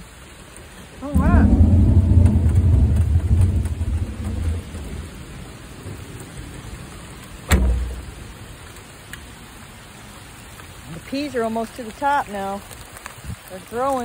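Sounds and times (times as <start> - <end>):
light rain falling: 0.0 - 14.0
low rumble: 1.0 - 6.1.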